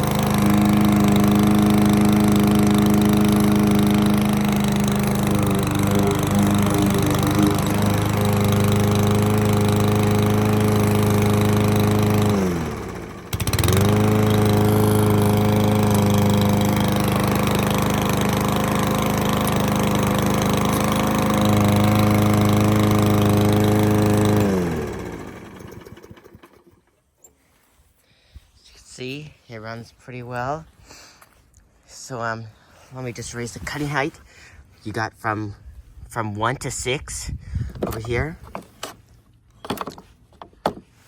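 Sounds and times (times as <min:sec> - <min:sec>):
lawnmower engine running: 0:00.0 - 0:26.9.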